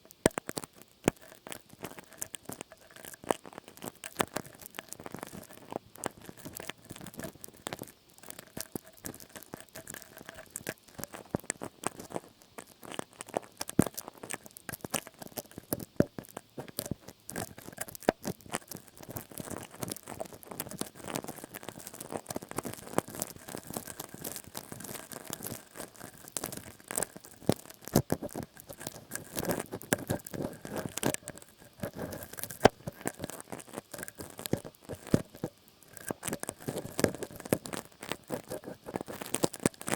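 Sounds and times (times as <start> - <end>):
crackly scratching: 0.0 - 39.9.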